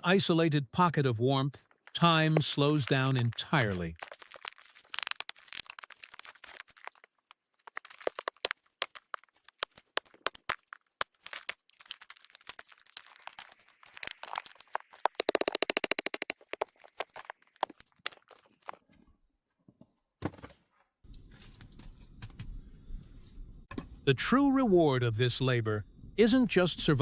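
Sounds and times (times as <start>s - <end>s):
wood fire crackling: 1.7s - 15.3s.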